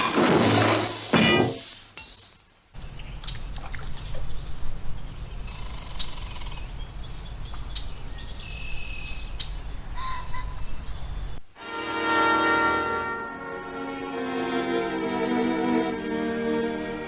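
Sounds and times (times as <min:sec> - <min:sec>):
bird chirps: 0:02.0 - 0:11.4.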